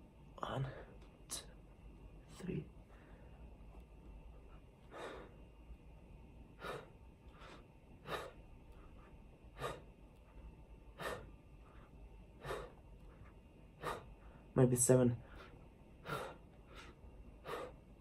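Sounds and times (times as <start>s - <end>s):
man breathing heavily: 2.8s - 3.6s, 4.3s - 5.6s, 6.5s - 14.5s, 15.2s - 18.0s.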